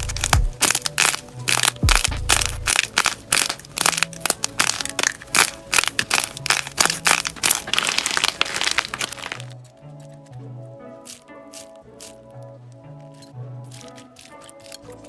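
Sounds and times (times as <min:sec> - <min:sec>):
slime crackling and popping: 0:00.0 - 0:09.6.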